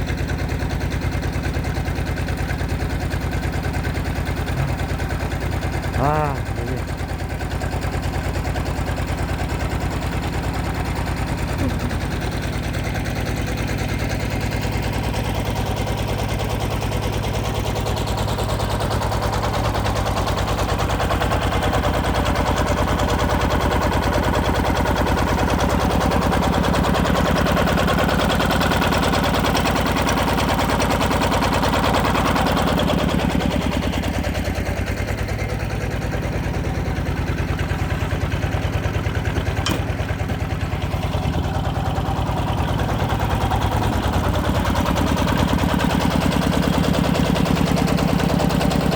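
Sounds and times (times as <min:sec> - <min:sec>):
diesel engine chugging: 0:00.0 - 0:48.9
sharp click: 0:39.6 - 0:40.1.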